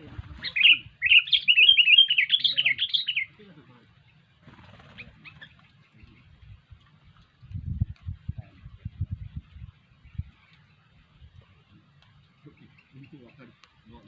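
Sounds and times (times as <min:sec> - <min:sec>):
bird rapid chattering calls: 0:00.0 - 0:03.4, 0:04.1 - 0:06.4
faint bird chirps: 0:00.0 - 0:07.3, 0:08.4 - 0:14.0.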